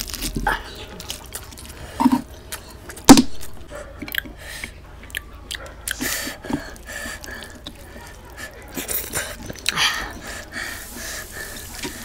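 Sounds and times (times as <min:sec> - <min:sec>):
chewing and wet mouth sounds: 0:00.0 - 0:12.0
loud sharp crack: 0:03.1 - 0:03.6.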